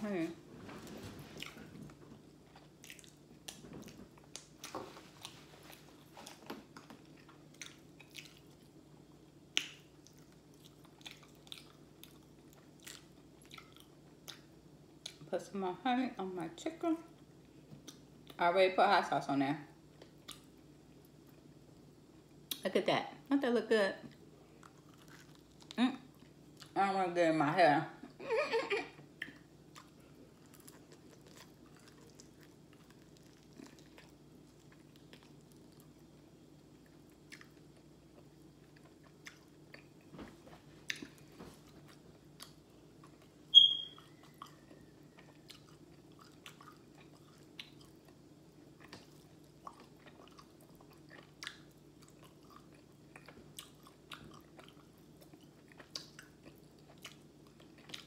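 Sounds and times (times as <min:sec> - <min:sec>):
chewing fried chicken: 0:01.2 - 0:15.3, 0:19.9 - 0:22.6, 0:24.0 - 0:26.8, 0:28.8 - 0:40.1, 0:40.8 - 0:58.0
sharp high-pitched squeak: 0:43.5 - 0:44.0.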